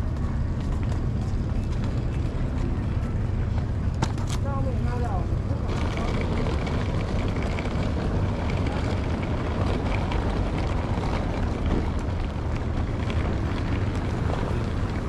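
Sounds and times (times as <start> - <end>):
low engine rumble: 0.0 - 15.0
wind on microphone: 5.6 - 15.0.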